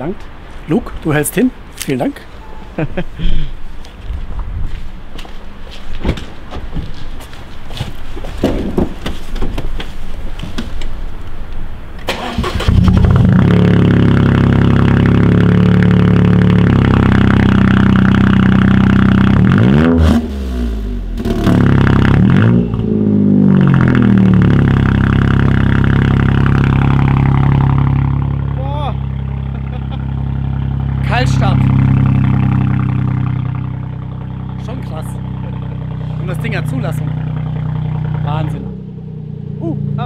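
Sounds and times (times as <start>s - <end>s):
car engine starting and revving: 12.0s - 40.0s.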